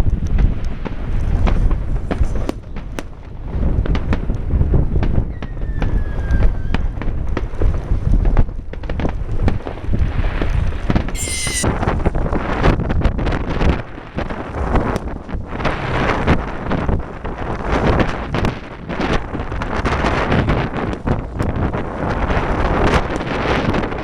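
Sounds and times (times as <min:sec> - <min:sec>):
firecrackers popping and cracking: 0:00.0 - 0:05.9, 0:06.9 - 0:10.7
wind rumbling on microphone: 0:00.0 - 0:24.0
faint falling whistle: 0:05.3 - 0:07.0, 0:11.2 - 0:11.7
brief shrill tone: 0:11.1 - 0:11.7.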